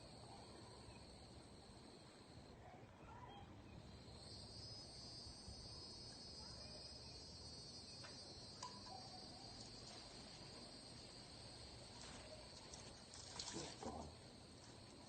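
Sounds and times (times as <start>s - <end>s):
high-pitched insect trilling: 4.1s - 14.1s.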